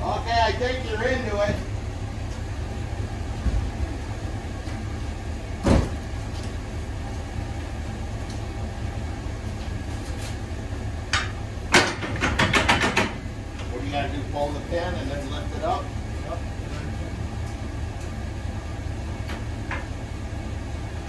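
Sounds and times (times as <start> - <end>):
truck engine idling: 0.0 - 21.0
loud clunk: 5.6 - 6.1, 11.1 - 13.2.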